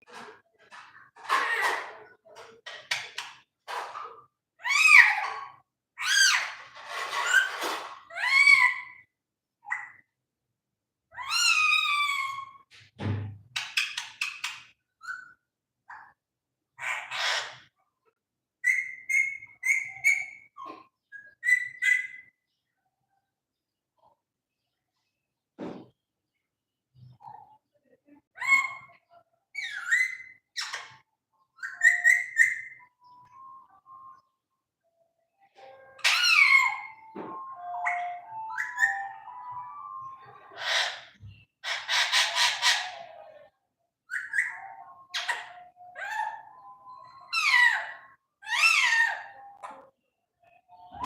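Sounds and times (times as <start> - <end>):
parrot chirps: 18.6 - 22.4, 28.4 - 34.3, 35.6 - 51.0
parrot whistling: 35.7 - 41.0
parrot harsh call: 36.0 - 37.0, 40.5 - 43.1.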